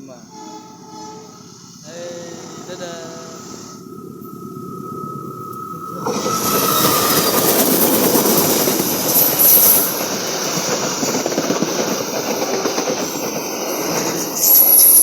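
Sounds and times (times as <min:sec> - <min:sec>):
high hiss and squeal: 0:00.0 - 0:15.0
train rumble: 0:00.0 - 0:15.0
train wheels clattering: 0:05.4 - 0:15.0.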